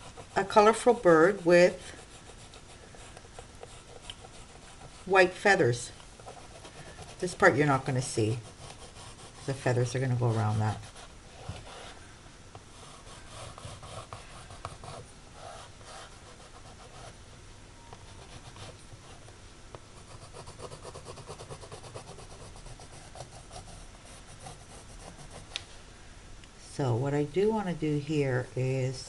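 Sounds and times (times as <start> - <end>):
pencil scratching on canvas: 0.0 - 12.0, 12.8 - 17.2, 20.0 - 25.5.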